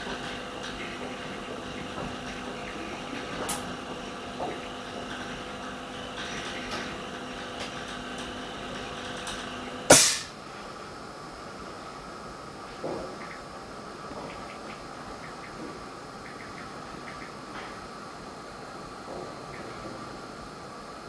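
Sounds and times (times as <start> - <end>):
laminating machine humming: 0.0 - 21.0
loud hiss of air: 9.9 - 10.9.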